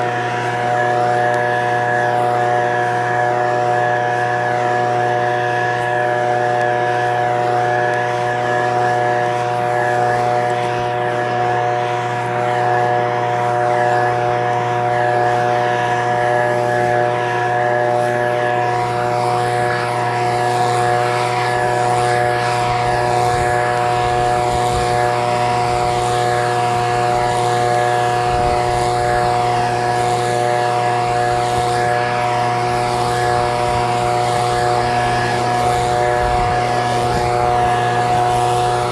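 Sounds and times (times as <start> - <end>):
leaf blower engine running: 0.0 - 38.9.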